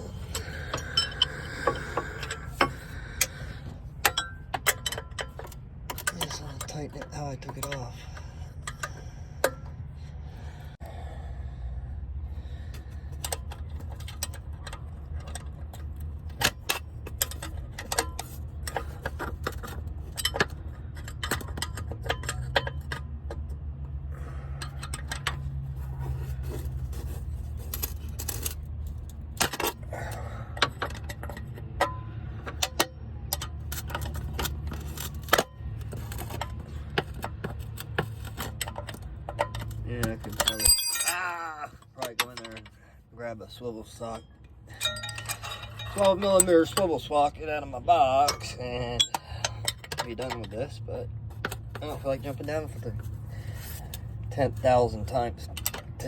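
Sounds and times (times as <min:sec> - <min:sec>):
metallic tool clinks: 0:40.4 - 0:41.5, 0:44.7 - 0:46.2.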